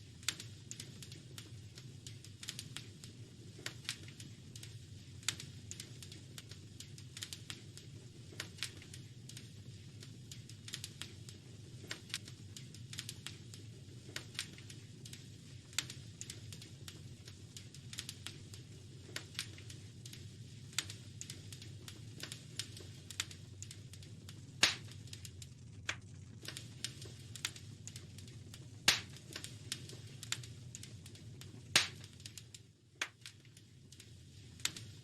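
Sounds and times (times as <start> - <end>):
low fire rumble: 0.0 - 35.0
wood fire crackling: 0.0 - 35.0
loud fire pops: 0.2 - 35.0.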